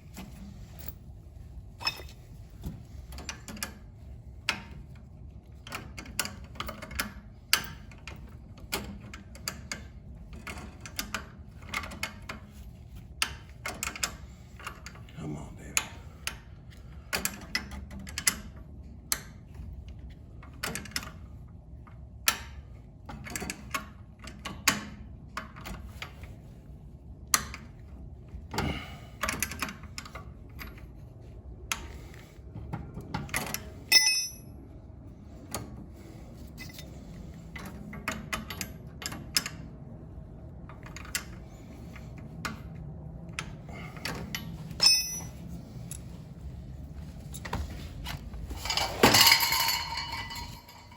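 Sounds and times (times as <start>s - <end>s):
metal tools clicking and clinking: 1.8s - 2.2s, 33.5s - 34.5s, 44.0s - 46.0s, 48.6s - 50.9s
ringing metallic clink: 33.9s - 34.5s, 44.8s - 45.4s, 48.7s - 50.9s.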